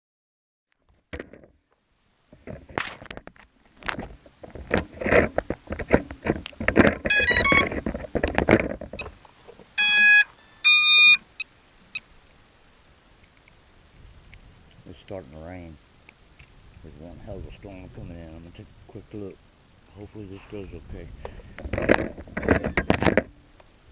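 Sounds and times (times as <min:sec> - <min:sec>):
clatter of things handled: 0:00.8 - 0:01.6, 0:02.4 - 0:09.7, 0:21.5 - 0:23.4
electronic beeps: 0:07.1 - 0:07.7, 0:09.8 - 0:12.0.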